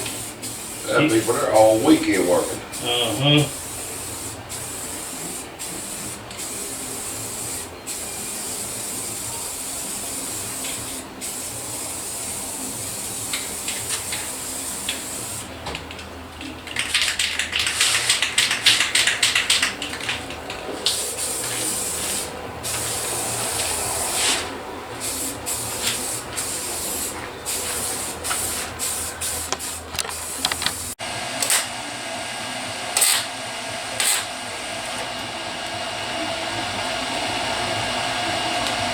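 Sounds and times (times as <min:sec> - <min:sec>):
welder sizzling hiss: 0:00.0 - 0:15.5, 0:20.9 - 0:31.8, 0:32.8 - 0:38.9.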